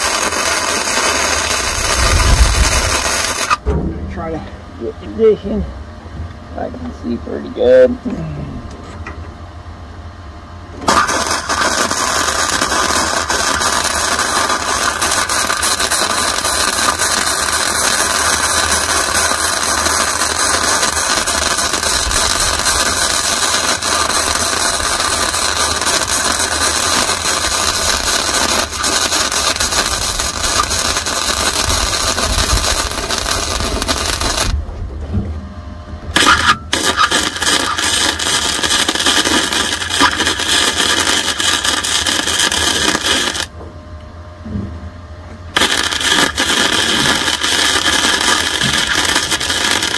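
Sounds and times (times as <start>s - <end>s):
welding arc crackling hiss: 0.0s - 3.6s, 10.8s - 34.6s, 36.2s - 43.5s, 45.5s - 49.9s.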